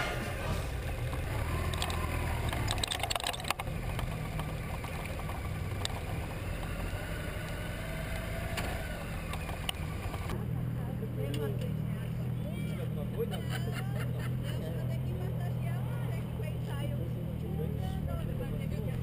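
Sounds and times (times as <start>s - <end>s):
motorcycle engine idling: 0.0s - 19.0s
clicks and rattles: 0.9s - 6.2s.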